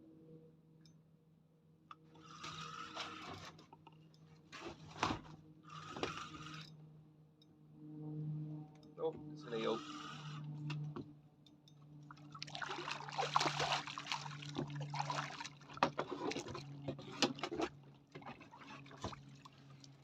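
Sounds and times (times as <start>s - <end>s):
water splashing and sloshing: 11.9s - 20.0s.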